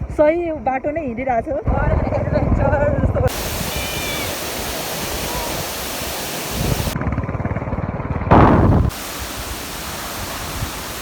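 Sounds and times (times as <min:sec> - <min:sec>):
wind rushing over microphone: 0:01.7 - 0:07.0, 0:08.3 - 0:09.6.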